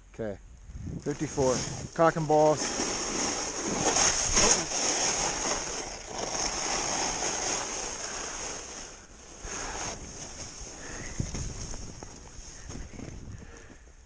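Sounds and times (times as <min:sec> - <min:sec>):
wind on microphone: 0:00.6 - 0:02.0, 0:09.4 - 0:13.8
snowboard sliding over snow: 0:01.1 - 0:13.6.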